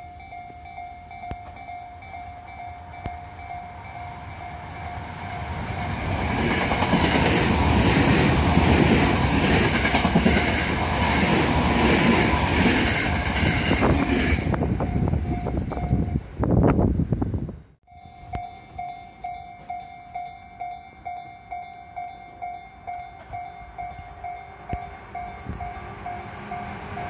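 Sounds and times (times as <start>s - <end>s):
train wheels rumbling on rails: 0.2s - 17.1s, 18.2s - 27.0s.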